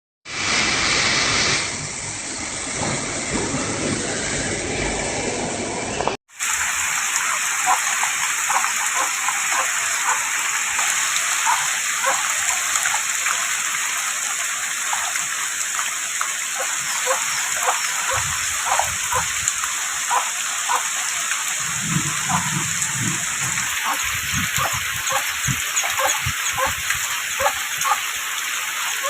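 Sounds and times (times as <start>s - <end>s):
heavy rain pouring: 0.3s - 29.0s
raindrops splashing: 6.3s - 29.0s.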